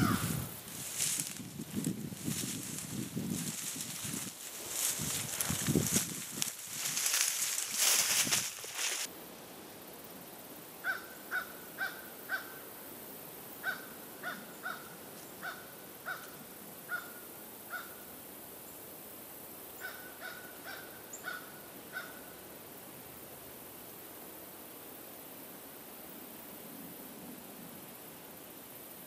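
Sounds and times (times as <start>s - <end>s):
bird calling: 0.0s - 0.5s
brush rustling: 0.0s - 9.1s.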